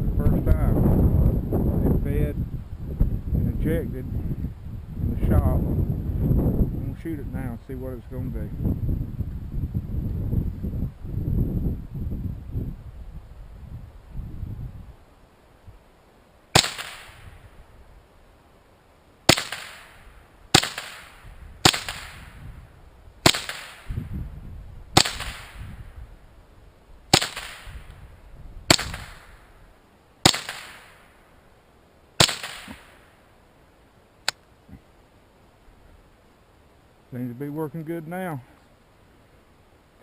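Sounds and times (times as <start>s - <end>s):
rifle shots with echo: 16.5s - 17.4s, 19.3s - 22.4s, 23.2s - 24.0s, 25.0s - 25.8s, 27.1s - 27.9s, 28.7s - 29.5s, 30.2s - 31.2s, 32.2s - 33.1s
sharp click: 34.2s - 34.5s.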